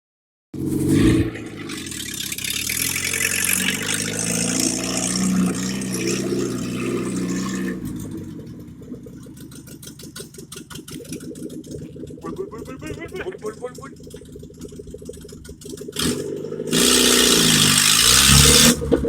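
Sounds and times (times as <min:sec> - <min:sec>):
car engine revving and idling: 0:00.6 - 0:19.0.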